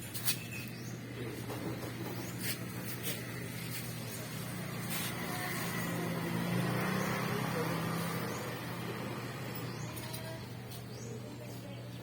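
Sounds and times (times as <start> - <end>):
small engine running: 1.4 - 10.8.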